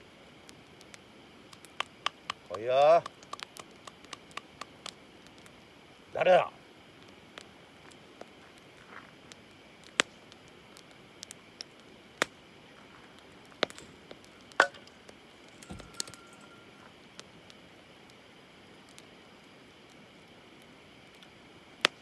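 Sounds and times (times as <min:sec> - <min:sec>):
campfire wood popping: 0:00.1 - 0:22.0.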